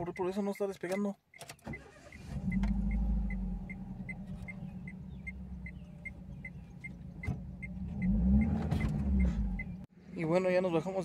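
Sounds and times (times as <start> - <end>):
car engine idling: 1.8 - 9.9.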